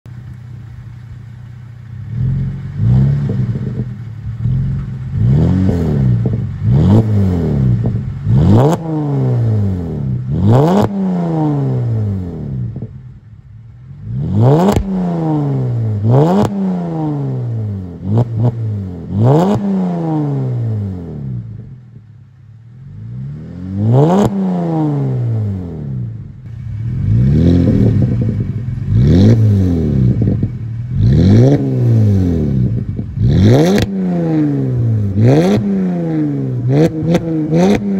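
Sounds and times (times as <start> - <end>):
car engine revving: 0.2 - 37.9.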